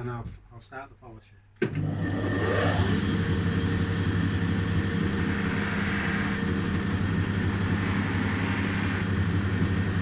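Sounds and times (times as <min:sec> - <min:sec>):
electric polishing machine humming: 0:02.1 - 0:09.8.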